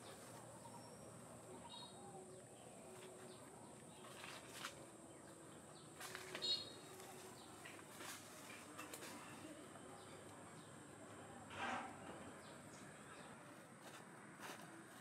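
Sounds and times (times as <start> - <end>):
bird chirps: 6.0 - 7.0.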